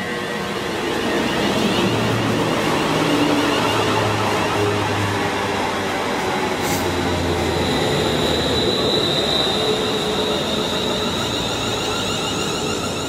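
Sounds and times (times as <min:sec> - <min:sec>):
train passing at speed: 0:00.0 - 0:13.0
high-pitched whine: 0:07.2 - 0:13.0.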